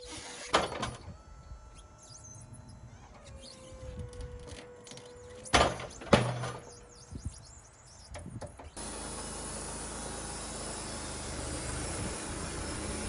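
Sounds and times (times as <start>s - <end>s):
saw whine: 0.0s - 13.0s.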